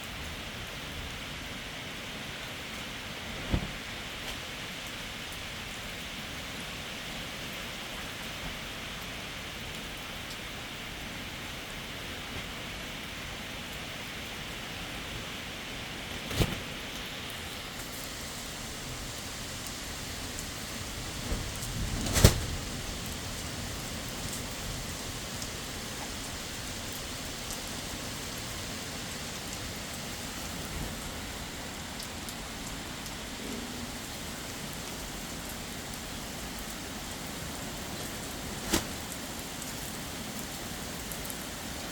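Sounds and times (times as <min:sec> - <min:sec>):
heavy rain falling: 0:00.0 - 0:41.9
sharp cracks: 0:21.2 - 0:22.7.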